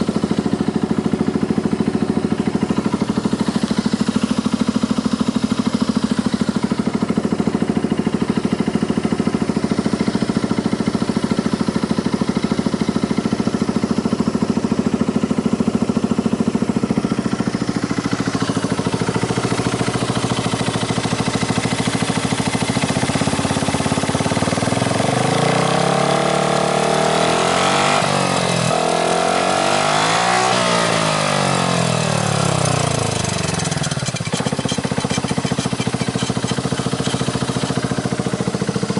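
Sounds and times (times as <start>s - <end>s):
scooter engine idling and revving: 0.0s - 38.9s.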